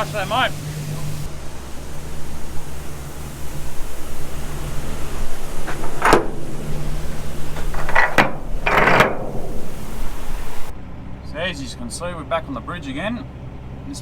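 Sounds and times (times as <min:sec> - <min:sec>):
sharp clunks: 0:00.0 - 0:10.7
truck engine running: 0:00.0 - 0:14.0.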